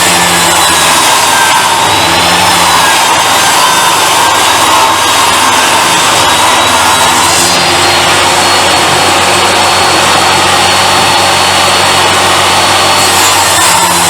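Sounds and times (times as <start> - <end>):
saw blade cutting wood: 0.0 - 14.0
table saw motor whine: 0.0 - 14.0.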